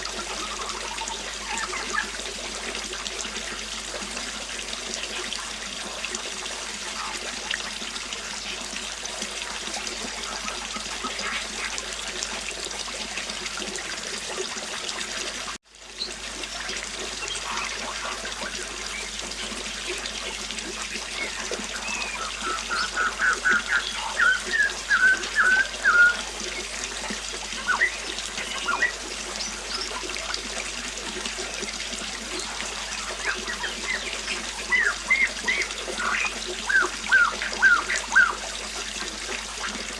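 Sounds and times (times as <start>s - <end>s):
river water flowing: 0.0s - 39.9s
birds chirping: 0.1s - 2.2s, 17.0s - 30.4s, 31.5s - 39.1s
bird calling loudly: 0.2s - 2.2s, 17.2s - 20.0s, 20.7s - 30.1s, 32.4s - 38.6s.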